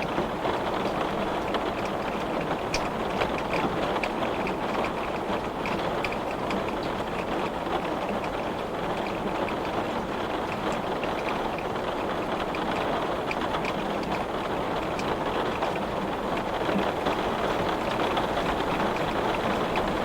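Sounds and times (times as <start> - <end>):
raindrops ticking on glass: 0.0 - 20.0.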